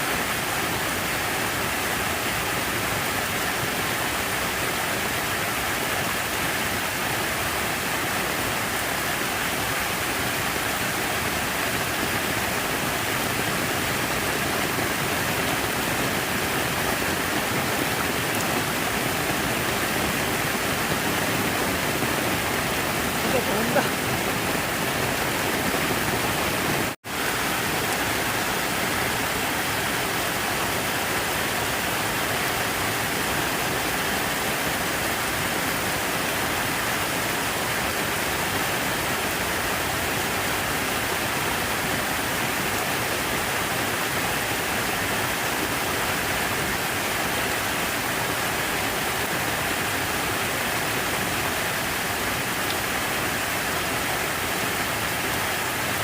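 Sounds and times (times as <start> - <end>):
falling water rushing: 0.0 - 56.0.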